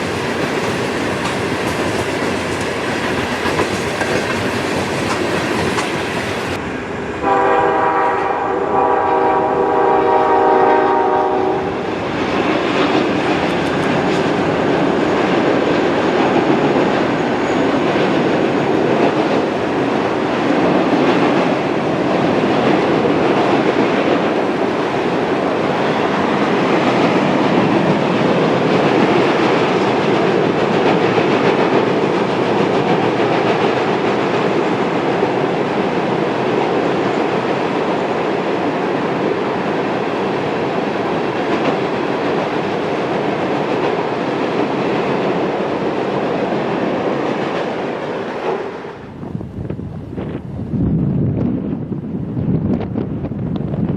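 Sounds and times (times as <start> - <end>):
freight train rumble and wheel clatter: 0.0 - 53.9
locomotive horn blast: 7.2 - 11.8.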